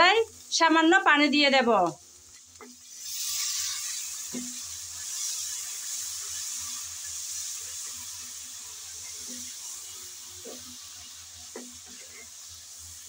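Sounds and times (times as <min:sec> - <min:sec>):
spice paste sizzling in hot oil: 0:00.0 - 0:13.0
wooden spatula scraping pan: 0:11.5 - 0:12.4.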